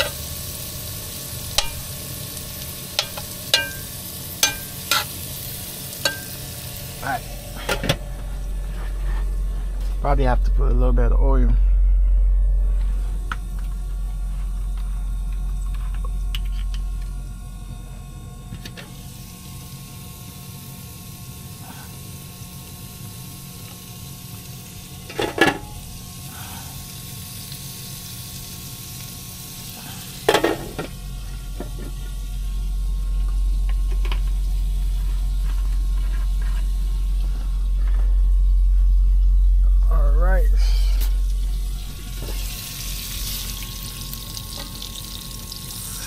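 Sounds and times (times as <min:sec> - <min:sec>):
shrimp and broccoli sizzling in a pan: 0:00.0 - 0:08.0, 0:18.8 - 0:37.4, 0:40.9 - 0:46.0
low hum: 0:00.0 - 0:46.0.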